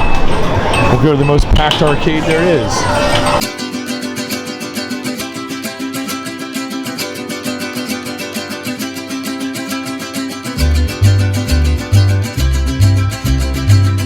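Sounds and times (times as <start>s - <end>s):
plucked guitar-like melody: 2.9s - 14.0s.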